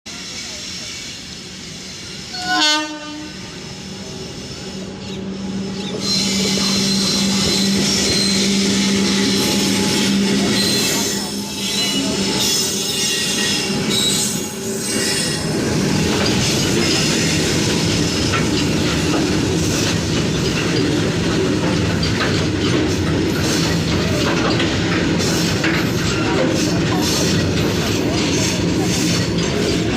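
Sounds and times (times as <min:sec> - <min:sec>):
train wheels on rails squealing: 0:00.1 - 0:29.9
wheels clicking over rails: 0:15.8 - 0:29.9.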